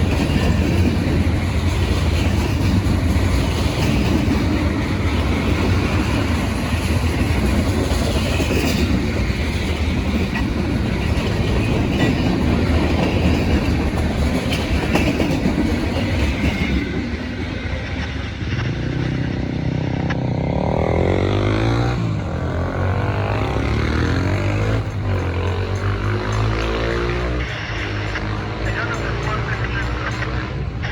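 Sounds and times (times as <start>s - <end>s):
train wheels rumbling and clacking: 0.0s - 30.9s.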